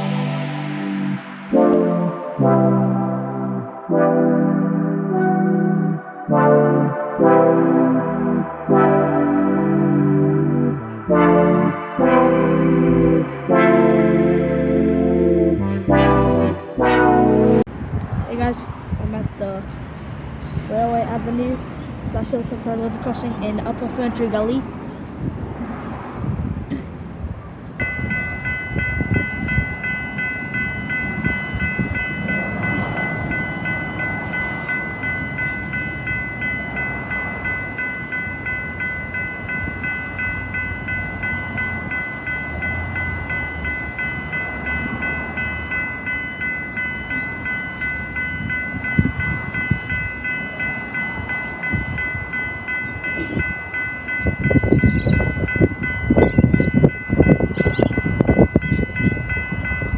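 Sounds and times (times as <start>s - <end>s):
level crossing warning bell: 0.0s - 17.6s, 20.7s - 25.0s, 27.8s - 59.9s
train passing: 0.0s - 59.9s
high-pitched squeals: 50.6s - 59.9s.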